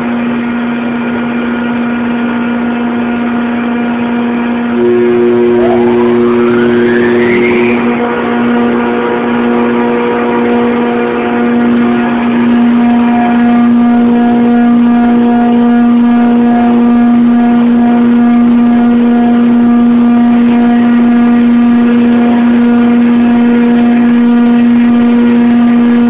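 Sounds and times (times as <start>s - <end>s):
rising whine: 4.5s - 26.0s
screw compressor humming: 4.8s - 20.5s
steady tone: 4.8s - 26.0s.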